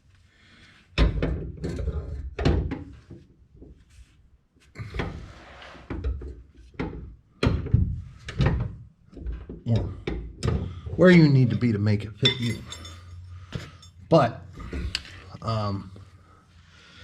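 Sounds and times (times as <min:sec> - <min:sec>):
metal brackets clunking and rattling: 0:05.9 - 0:15.2.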